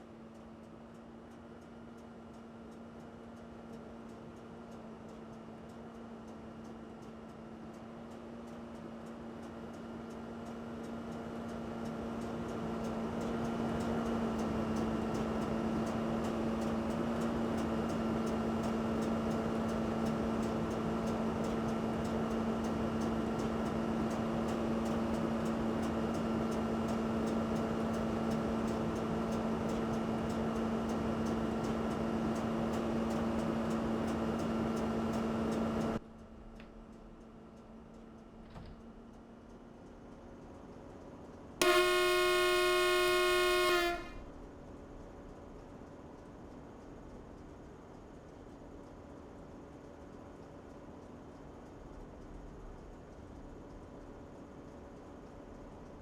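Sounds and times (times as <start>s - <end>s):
machine hum: 41.6s - 44.4s.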